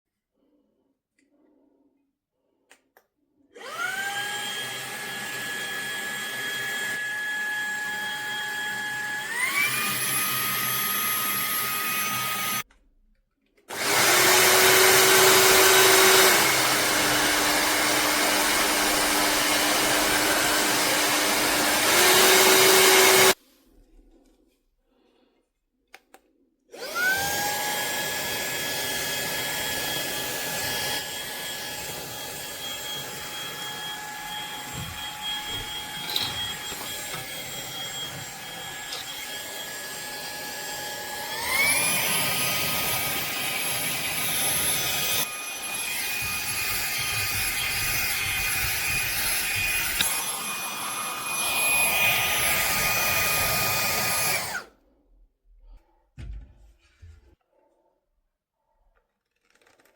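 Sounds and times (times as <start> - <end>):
handheld vacuum motor whine: 3.6 - 12.7, 13.7 - 23.4, 26.7 - 54.8.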